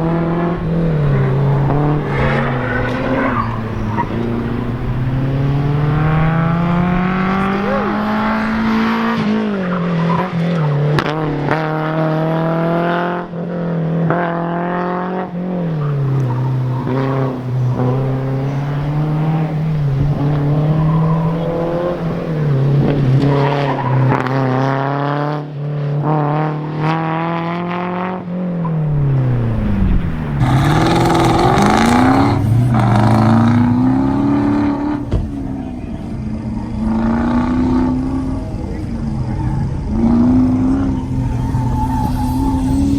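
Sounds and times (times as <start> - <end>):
tyres squealing: 0.0 - 10.8, 30.4 - 42.9
car engine revving: 0.0 - 42.9.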